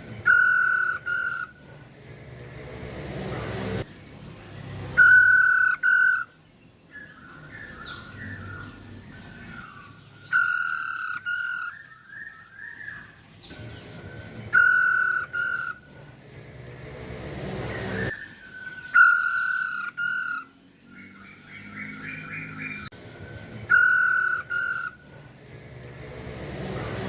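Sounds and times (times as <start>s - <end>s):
harsh bird calls: 0.0s - 1.7s, 4.7s - 16.0s, 17.6s - 25.2s
soft bird warbling: 0.3s - 1.6s, 5.0s - 6.3s, 7.7s - 13.1s, 14.5s - 15.9s, 18.0s - 20.6s, 23.7s - 25.1s.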